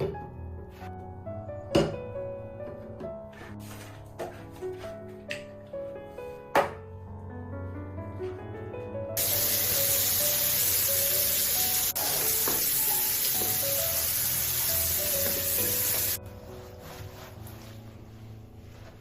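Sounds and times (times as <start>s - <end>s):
background music: 0.0s - 19.0s
food sizzling in a pan: 9.2s - 16.2s.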